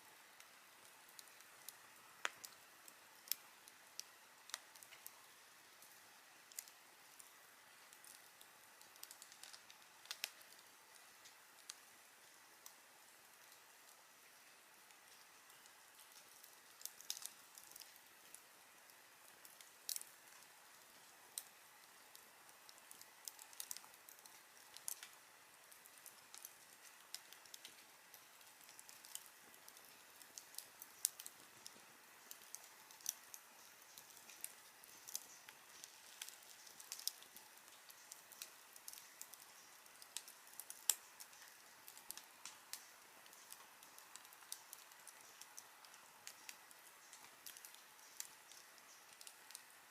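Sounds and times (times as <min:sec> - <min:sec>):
campfire crackling and popping: 0:00.0 - 0:49.9
soft hiss of fire: 0:00.0 - 0:49.9.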